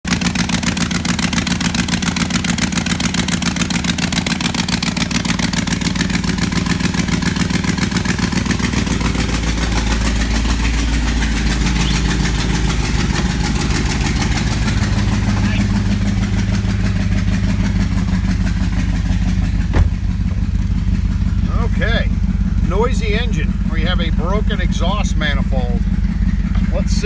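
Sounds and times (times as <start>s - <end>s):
v eight engine idling loudly: 0.1s - 27.0s
deeper rumble: 6.6s - 27.0s.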